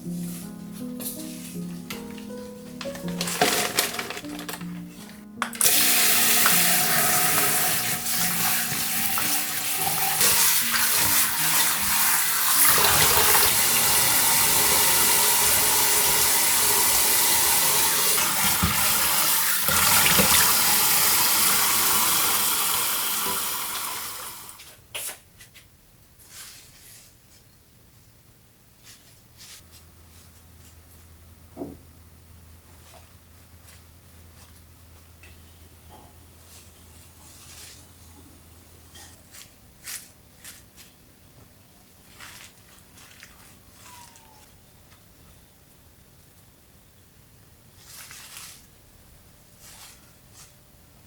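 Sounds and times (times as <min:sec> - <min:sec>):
tap running into sink: 0:02.8 - 0:24.3.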